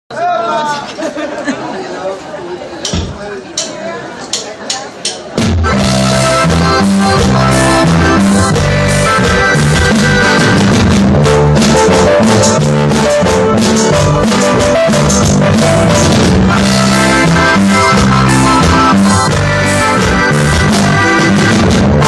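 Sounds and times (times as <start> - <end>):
drum kit: 5.0 - 22.0
bass line: 5.4 - 22.0
guitar: 5.4 - 22.0.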